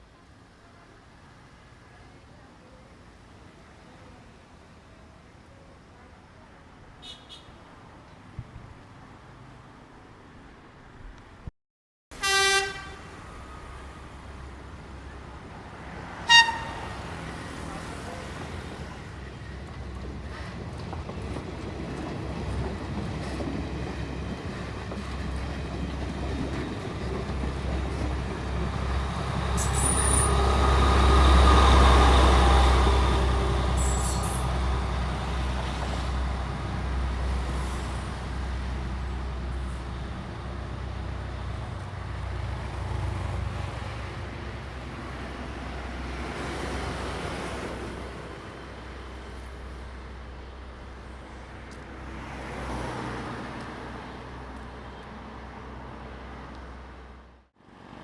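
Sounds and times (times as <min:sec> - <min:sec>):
train passing rumble: 0:12.2 - 0:58.0
high squeaks: 0:29.6 - 0:30.4, 0:33.8 - 0:34.6.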